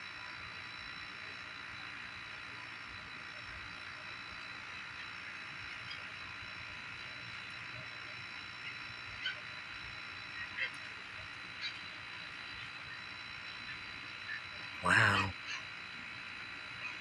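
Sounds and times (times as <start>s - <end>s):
even night hiss: 13.8s - 15.6s.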